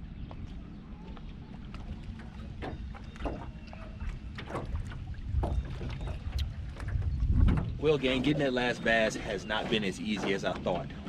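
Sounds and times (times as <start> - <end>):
wind on microphone: 4.0 - 10.1.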